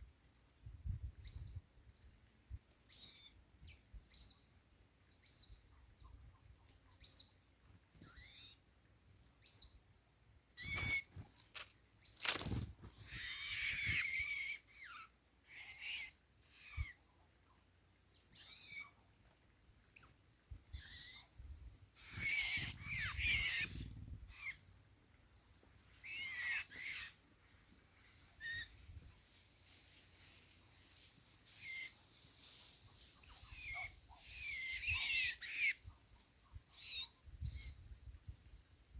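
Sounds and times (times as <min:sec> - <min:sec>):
birds squeaky calls: 0:10.6 - 0:11.2, 0:12.0 - 0:17.0, 0:22.0 - 0:24.7, 0:26.0 - 0:27.2, 0:31.6 - 0:32.0, 0:33.2 - 0:35.8, 0:36.7 - 0:37.8.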